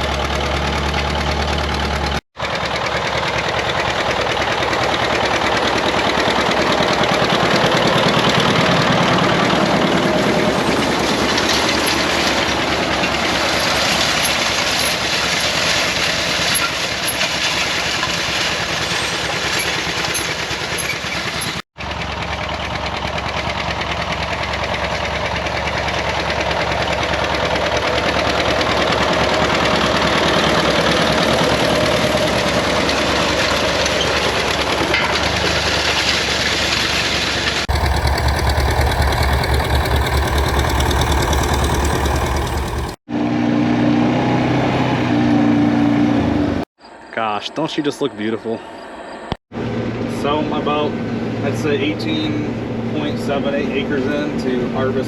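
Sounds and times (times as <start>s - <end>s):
farm machinery engine running: 0.0s - 43.5s.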